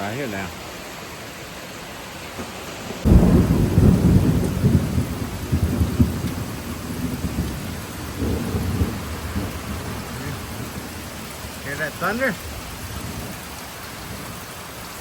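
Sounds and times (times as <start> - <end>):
steady rain: 0.0 - 15.0
thunder crack and rumble: 3.0 - 14.4.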